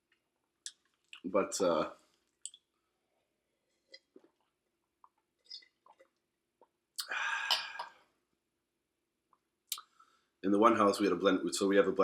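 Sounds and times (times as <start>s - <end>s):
person chewing food: 2.2s - 7.8s
wet mouth clicks: 2.4s - 2.7s, 7.0s - 7.9s, 9.7s - 9.9s.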